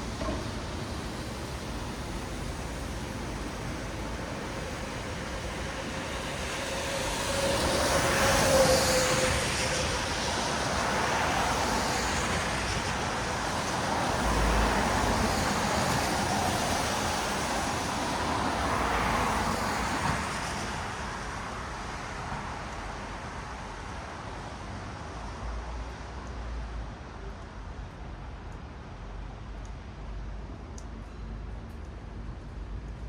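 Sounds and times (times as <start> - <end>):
tyres hissing on wet asphalt: 0.0 - 23.9
hum of vehicles: 0.0 - 33.0.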